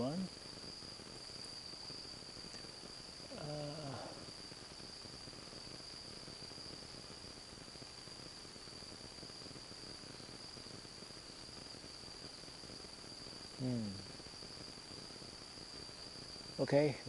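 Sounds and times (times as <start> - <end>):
insects trilling: 0.0 - 17.0
person humming: 3.3 - 4.1, 13.6 - 14.0.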